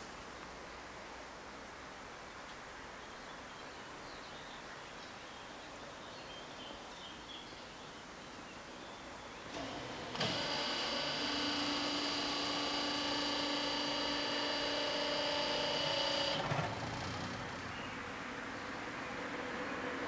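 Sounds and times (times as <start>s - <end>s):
electric whine: 9.5s - 17.9s.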